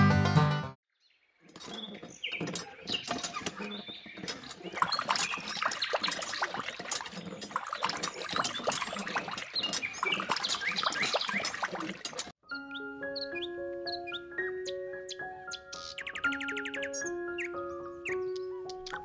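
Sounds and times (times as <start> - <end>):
pump handle clicks and squeaks: 1.5 - 12.3
water trickling into bowl: 4.7 - 12.3.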